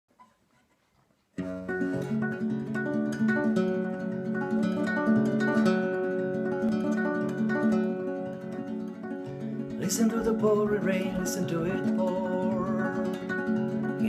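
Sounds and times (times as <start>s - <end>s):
acoustic guitar strumming: 1.4s - 14.0s.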